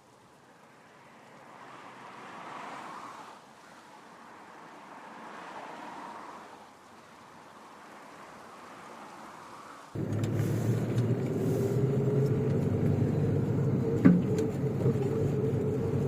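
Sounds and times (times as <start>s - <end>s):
tyre noise on wet track: 0.5s - 16.0s
off-road vehicle engine: 9.9s - 16.0s.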